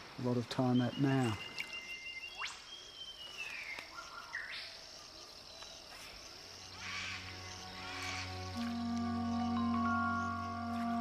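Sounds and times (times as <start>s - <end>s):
insect chirring: 0.1s - 11.0s
birds whistling calls: 0.5s - 11.0s
soft sustained music: 5.3s - 11.0s.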